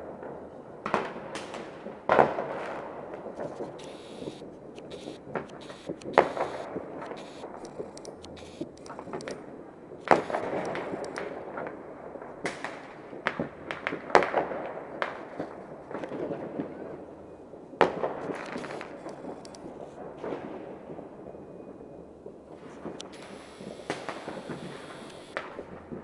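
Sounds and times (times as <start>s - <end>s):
fireworks booms with echo: 0.0s - 17.2s, 17.8s - 26.0s
fireworks bangs and crackling: 0.0s - 26.0s.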